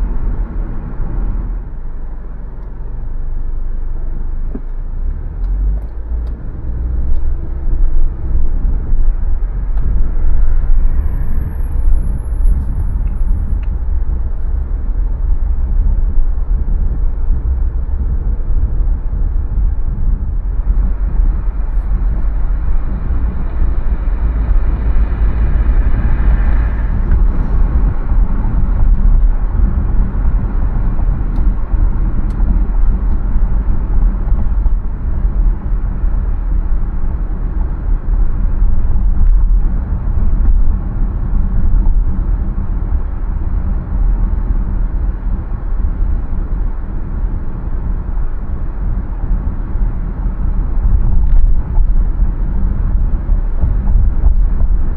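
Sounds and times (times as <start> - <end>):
car road and engine rumble: 0.0 - 54.9.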